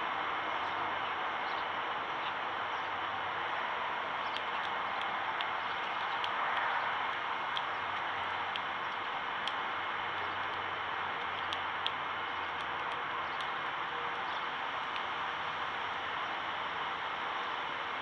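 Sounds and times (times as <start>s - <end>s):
steady hiss: 0.0s - 18.0s
faint sharp clicks: 4.2s - 15.2s.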